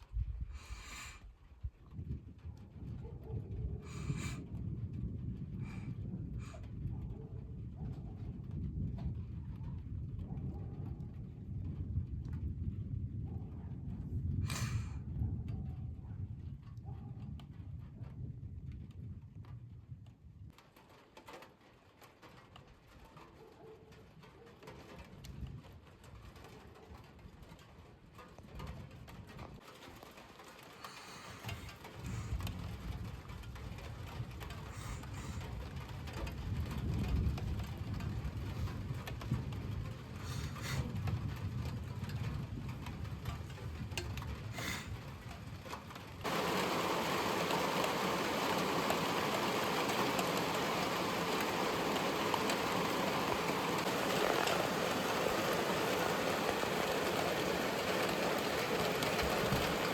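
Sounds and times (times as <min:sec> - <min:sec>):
rain hissing: 0:14.5 - 0:14.9, 0:30.7 - 0:32.4, 0:34.5 - 0:35.6, 0:40.0 - 0:41.0, 0:44.4 - 0:59.9
thunder rumbling: 0:46.0 - 0:59.9.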